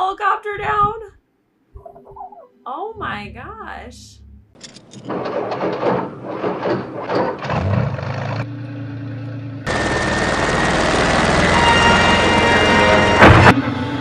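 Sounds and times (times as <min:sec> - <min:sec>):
low hum: 0:00.0 - 0:05.0, 0:07.4 - 0:14.0
helicopter rotor chopping: 0:09.7 - 0:13.0.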